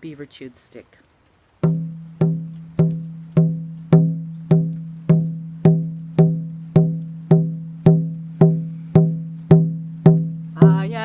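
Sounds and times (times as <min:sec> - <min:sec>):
hand drum beating: 0:01.6 - 0:11.0.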